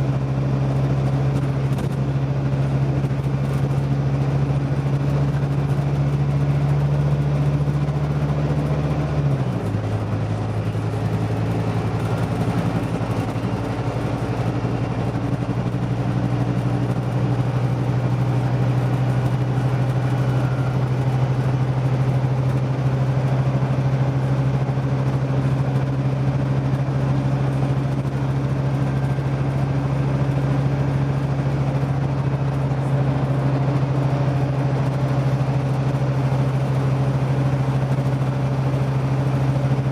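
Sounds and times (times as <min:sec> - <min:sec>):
bus diesel engine running: 0:00.0 - 0:39.9.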